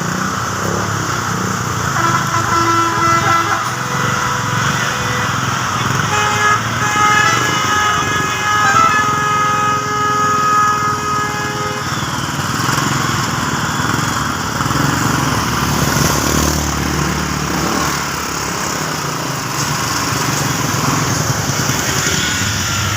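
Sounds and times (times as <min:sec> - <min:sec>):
small engine running: 0:00.0 - 0:22.9
horn-like tone: 0:01.9 - 0:14.0, 0:21.2 - 0:22.9.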